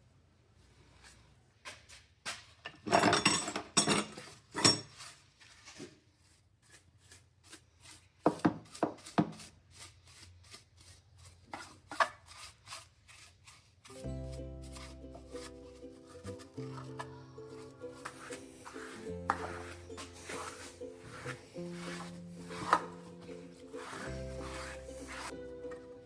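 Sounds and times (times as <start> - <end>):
scrubbing and scraping: 4.2 - 26.0
music with steady tones: 14.0 - 26.0.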